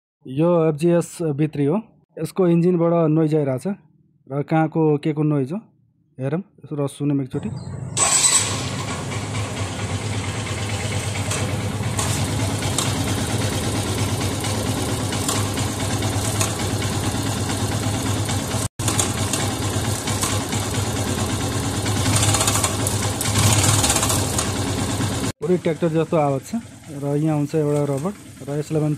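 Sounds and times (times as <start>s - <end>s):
motorcycle engine idling with clatter: 7.7s - 28.9s.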